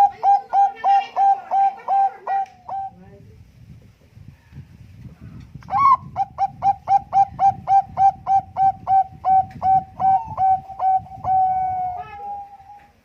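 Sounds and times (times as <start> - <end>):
dove cooing: 0.0 - 3.0, 5.7 - 13.0.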